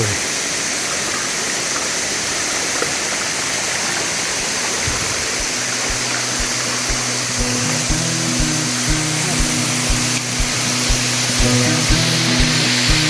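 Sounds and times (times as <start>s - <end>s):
waterfall rushing: 0.0s - 13.0s
background music with low beat: 4.9s - 13.0s.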